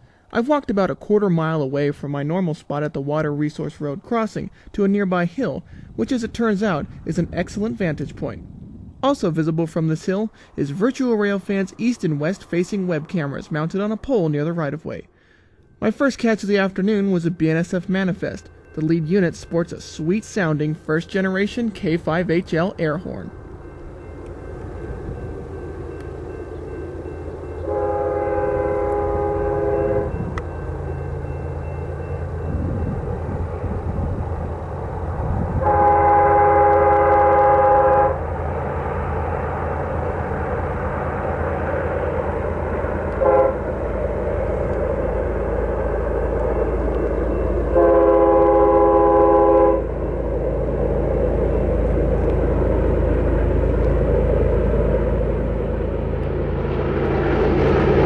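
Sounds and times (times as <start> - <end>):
diesel locomotive rumble: 5.4 - 58.0
locomotive air horn: 27.6 - 30.2, 35.6 - 38.2, 43.2 - 43.7, 47.7 - 49.9.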